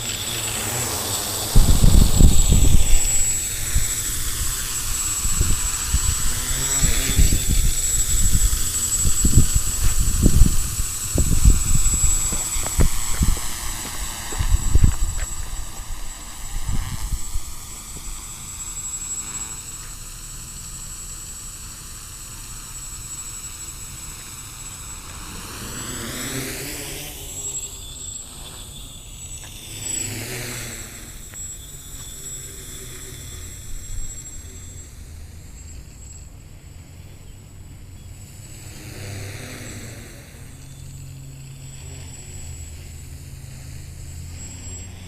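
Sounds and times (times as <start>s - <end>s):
quadcopter propellers buzzing: 0.0s - 45.0s.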